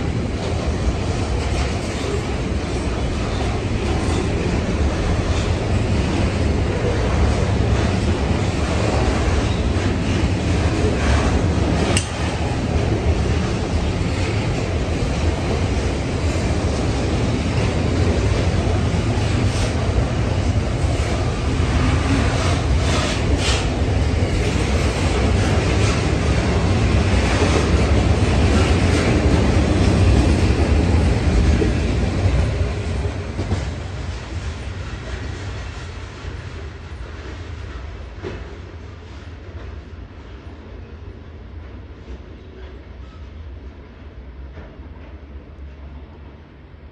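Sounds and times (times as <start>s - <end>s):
train wheels clattering over rail joints: 0.1s - 38.8s.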